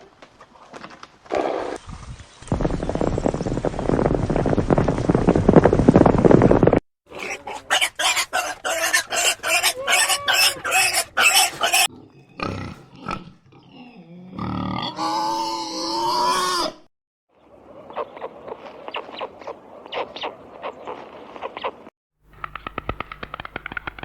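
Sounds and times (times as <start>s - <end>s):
animal calling harshly: 7.1s - 11.9s.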